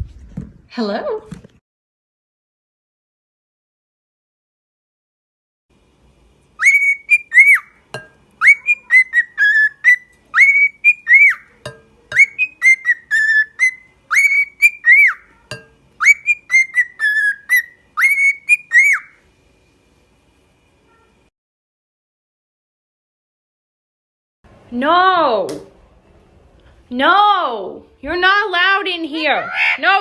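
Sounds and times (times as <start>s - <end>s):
bird whistling a melodic tune: 6.6s - 7.8s, 8.4s - 11.5s, 12.1s - 15.3s, 16.0s - 19.2s.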